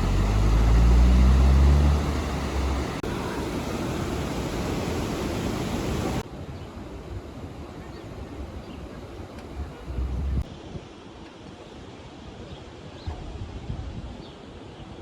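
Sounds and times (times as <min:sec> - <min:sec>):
rushing noise with low rumble: 0:00.0 - 0:06.3, 0:06.9 - 0:10.5
airy outdoor background: 0:00.0 - 0:15.0.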